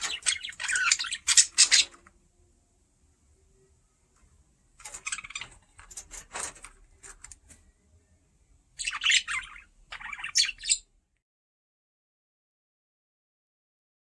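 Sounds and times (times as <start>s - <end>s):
budgie chirping and chattering: 0.0s - 2.0s, 4.9s - 5.9s, 8.8s - 10.8s.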